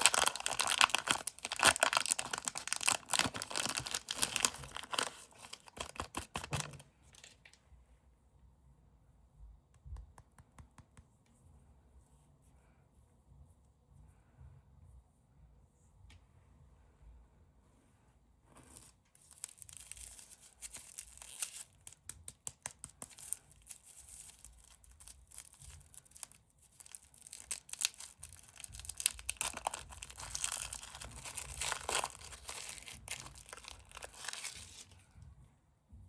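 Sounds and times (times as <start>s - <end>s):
candy wrapper crinkling and tearing: 0.0s - 7.6s, 18.7s - 35.0s.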